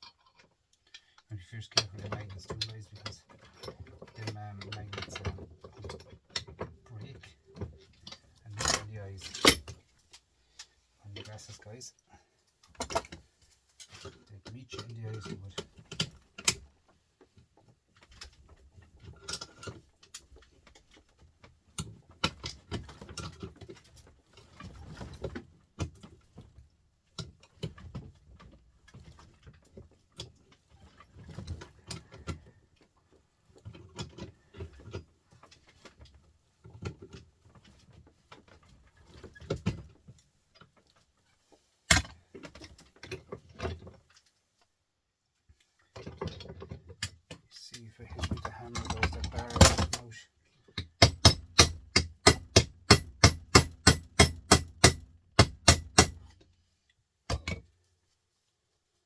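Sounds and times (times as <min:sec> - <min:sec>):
small metal parts clinking and rattling: 0:07.8 - 0:09.8.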